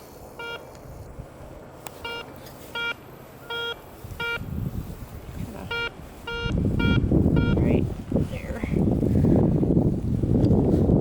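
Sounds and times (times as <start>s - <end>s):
metal detector beeping: 0.3s - 0.8s, 1.9s - 4.5s, 5.6s - 7.8s.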